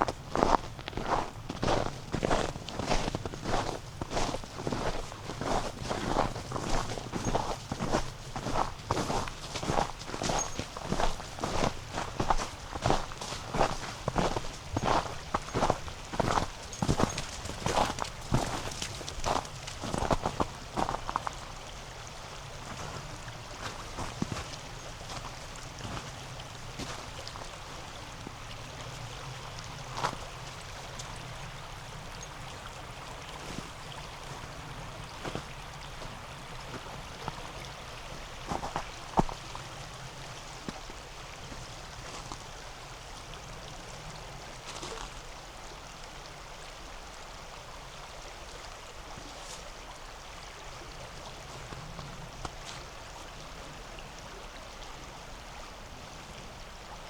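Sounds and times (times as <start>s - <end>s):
river rushing: 0.0s - 57.0s.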